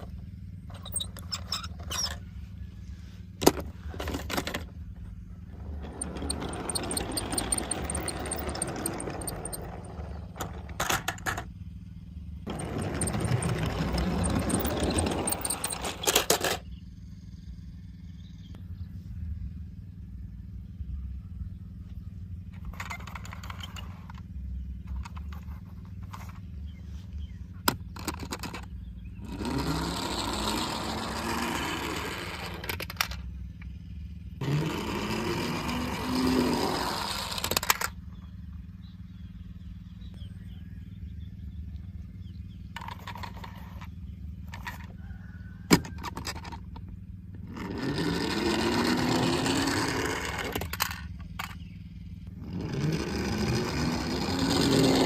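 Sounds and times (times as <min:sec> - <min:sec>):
steady low hum: 0:00.0 - 0:55.0
engine revving: 0:05.3 - 0:16.6, 0:22.4 - 0:33.2, 0:34.2 - 0:40.3, 0:47.3 - 0:55.0.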